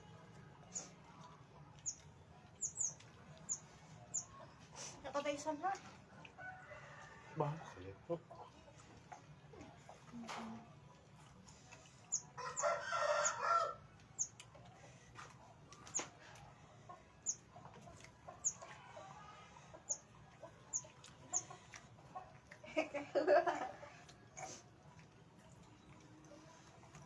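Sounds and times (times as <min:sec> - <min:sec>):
rooster crowing: 0:06.4 - 0:07.6, 0:12.4 - 0:13.8.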